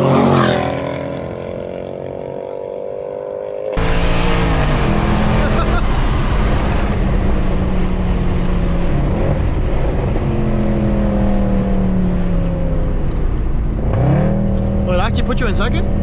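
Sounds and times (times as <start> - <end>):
car engine under load: 3.8 - 16.0.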